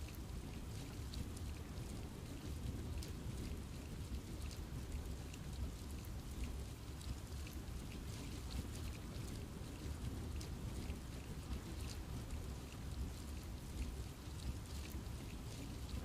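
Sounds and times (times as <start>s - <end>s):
raindrops pattering on leaves: 0.0s - 16.0s.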